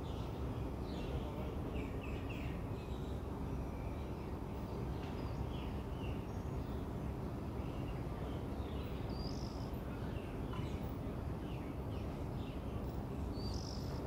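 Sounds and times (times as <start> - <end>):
birds chirping: 7.6 - 14.0.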